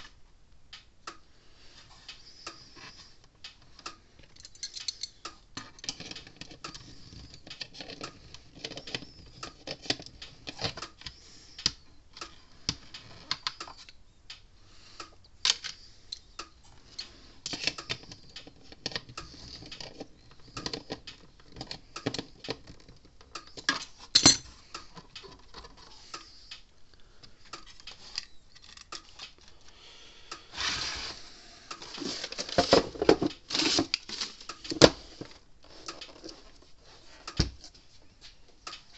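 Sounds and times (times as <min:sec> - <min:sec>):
metal parts and tools clinking: 0:04.2 - 0:10.8, 0:23.5 - 0:24.6.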